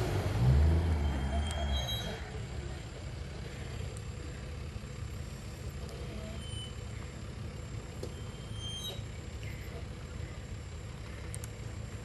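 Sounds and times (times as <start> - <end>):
louder engine passing: 0.0 - 2.4
vehicle engine idling: 0.0 - 12.0.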